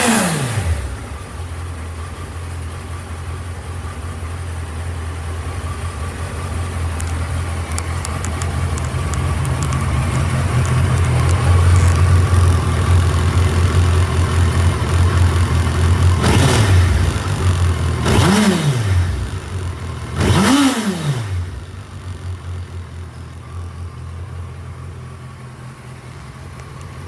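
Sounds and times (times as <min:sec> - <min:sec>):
motorcycle engine idling: 0:00.0 - 0:27.0
faint high ticks: 0:06.9 - 0:10.0, 0:26.5 - 0:27.0.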